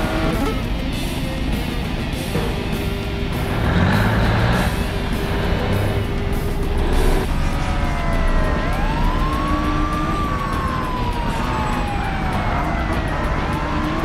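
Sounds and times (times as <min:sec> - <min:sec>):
ambulance siren wailing: 0:03.5 - 0:14.0.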